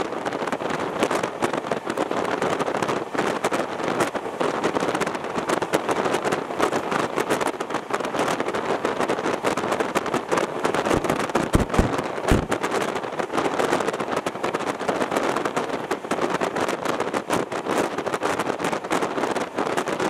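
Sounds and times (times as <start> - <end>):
wheels rattling on track: 0.0 - 20.0
wind buffeting microphone: 0.0 - 20.0
heavy low thumps: 11.4 - 12.6.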